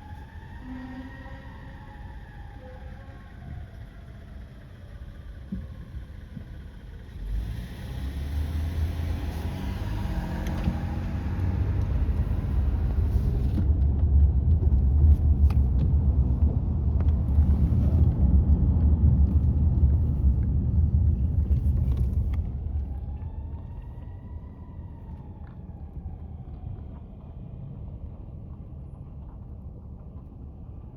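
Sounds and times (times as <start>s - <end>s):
faint siren wail: 0.0s - 7.6s, 8.4s - 13.8s, 22.1s - 29.0s
diesel engine rumbling: 0.0s - 30.9s.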